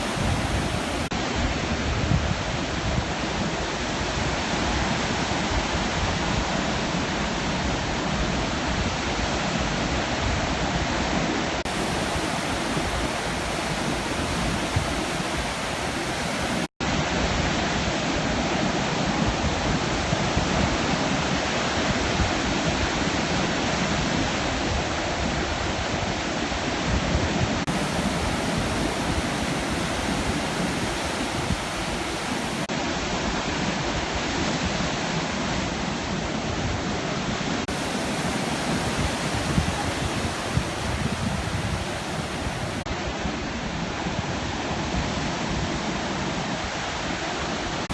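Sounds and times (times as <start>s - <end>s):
sea surf breaking: 0.0s - 1.1s, 11.7s - 16.7s, 27.7s - 32.7s, 37.7s - 42.8s.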